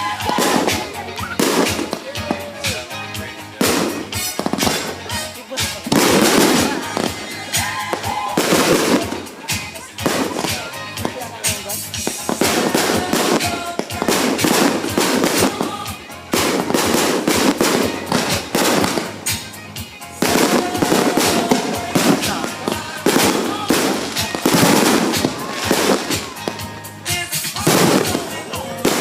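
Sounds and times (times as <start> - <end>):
fireworks crackling bangs: 0.0 - 29.0
music: 0.0 - 29.0.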